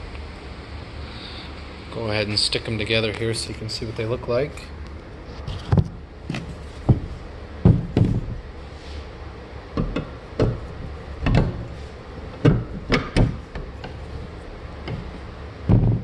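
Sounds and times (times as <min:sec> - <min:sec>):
metal engine cases knocking: 0:06.8 - 0:08.4, 0:09.8 - 0:16.0.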